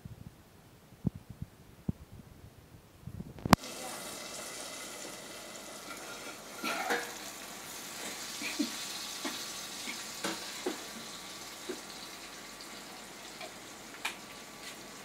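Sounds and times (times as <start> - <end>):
masala sizzling in a pan: 3.4 - 15.0
pan lid clattering: 5.8 - 7.3.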